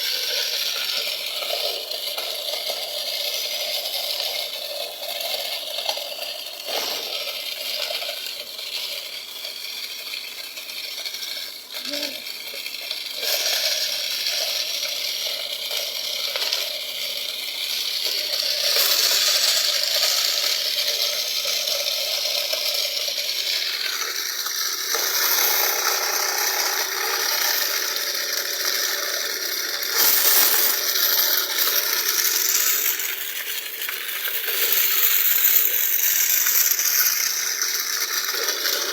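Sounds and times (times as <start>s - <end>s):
toy thresher metallic rattling: 0.0s - 38.9s.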